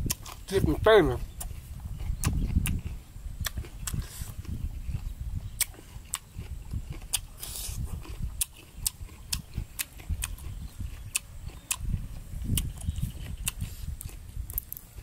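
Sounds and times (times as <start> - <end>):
wet mouth smacking clicks: 2.2 - 2.8, 3.4 - 4.0, 12.5 - 14.8.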